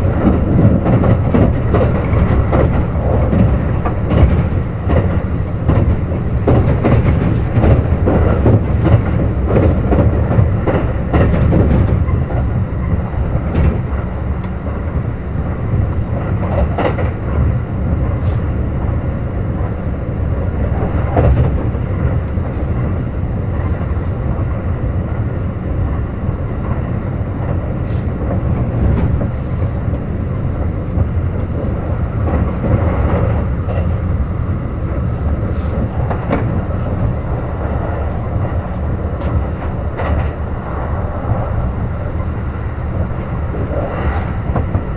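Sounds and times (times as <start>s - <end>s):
wheel clicks over rail joints: 0.0s - 18.4s.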